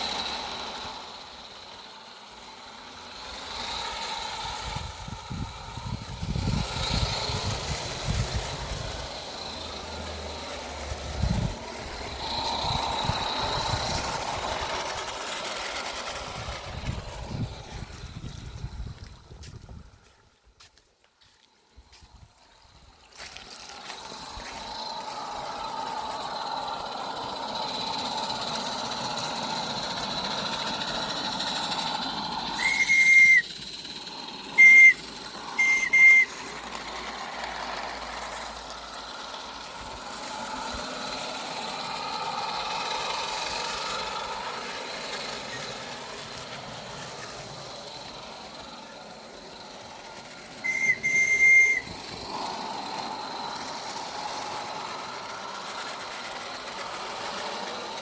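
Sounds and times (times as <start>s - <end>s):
high-pitched steam whistle toots: 0.0s - 19.6s, 23.2s - 58.0s
steam locomotive hissing: 0.0s - 20.1s, 21.8s - 58.0s.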